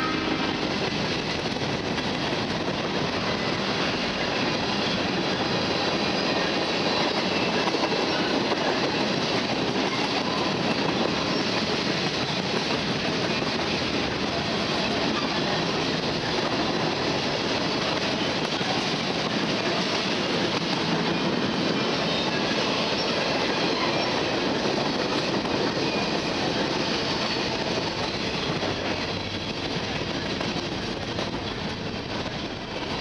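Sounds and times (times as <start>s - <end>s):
train wheels on rail: 0.0s - 33.0s.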